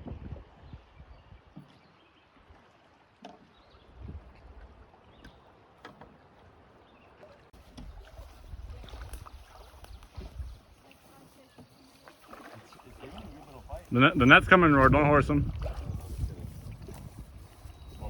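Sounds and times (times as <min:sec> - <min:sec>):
wind buffeting microphone: 0:00.0 - 0:01.6, 0:03.9 - 0:04.7, 0:07.6 - 0:11.1, 0:12.8 - 0:18.0
knocks and clicks in a boat: 0:04.3 - 0:06.3, 0:07.6 - 0:10.6.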